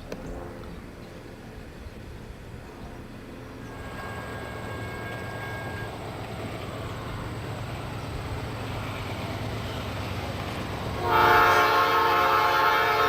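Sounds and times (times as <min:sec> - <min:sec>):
diesel locomotive rumble: 0:00.0 - 0:13.0
faint high steady tone: 0:00.2 - 0:07.9.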